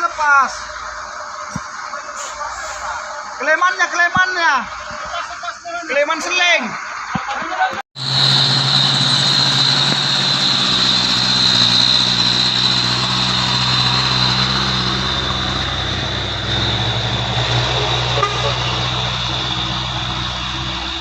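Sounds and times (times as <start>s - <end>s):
high-pitched hiss: 0.0s - 7.0s
diesel truck engine running: 8.0s - 21.0s.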